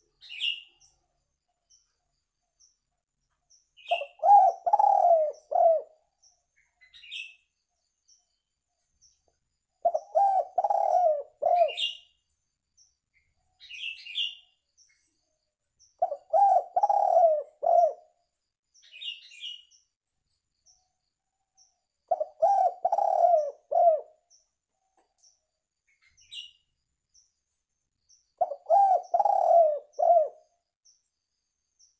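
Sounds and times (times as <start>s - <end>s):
faint high bird chirps: 0.0s - 31.9s
dove cooing: 3.8s - 6.0s, 9.8s - 12.0s, 16.0s - 18.2s, 22.1s - 24.2s, 28.4s - 30.4s.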